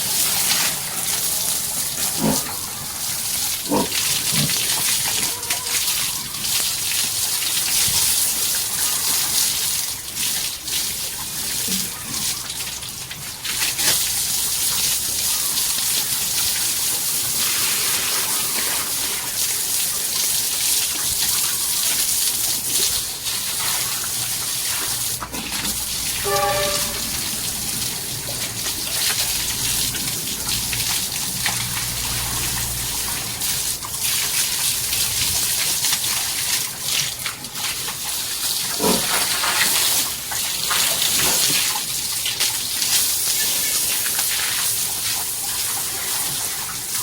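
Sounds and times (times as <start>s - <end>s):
hose spraying water: 0.0s - 47.0s
short pitched call: 26.2s - 27.4s.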